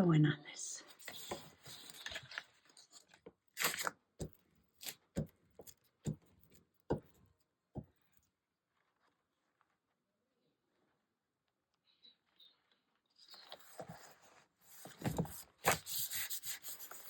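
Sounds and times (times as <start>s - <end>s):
paper rustling: 0.9s - 6.6s, 13.2s - 17.0s.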